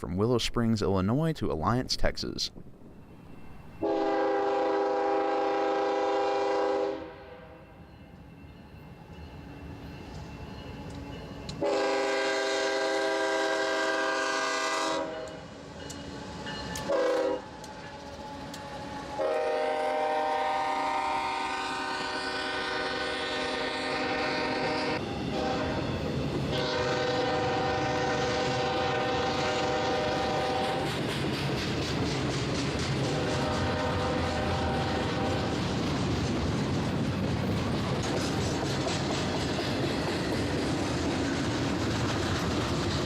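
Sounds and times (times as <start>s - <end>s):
train rumble: 1.2s - 43.0s
locomotive air horn blasts: 3.8s - 7.5s, 11.6s - 15.4s, 16.9s - 17.5s, 19.2s - 25.8s, 26.5s - 30.8s, 33.2s - 35.4s.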